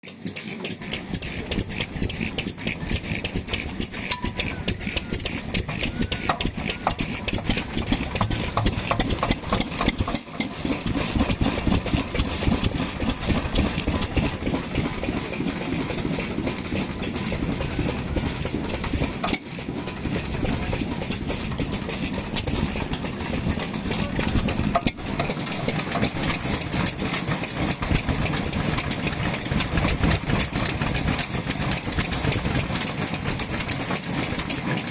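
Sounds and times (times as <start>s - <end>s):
stationary engines idling: 0.0s - 34.9s.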